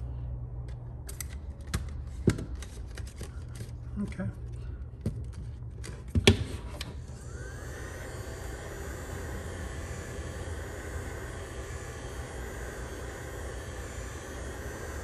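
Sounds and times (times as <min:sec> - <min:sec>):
heat gun blowing hiss: 0:07.1 - 0:15.0.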